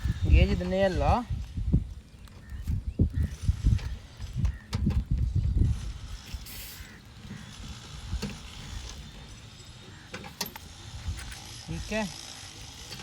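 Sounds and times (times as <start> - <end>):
short hiss: 6.2 - 7.0.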